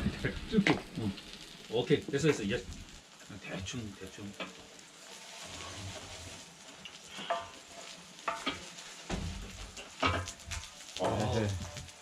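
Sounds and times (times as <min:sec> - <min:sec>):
batter sizzling in oil: 0:00.0 - 0:12.0.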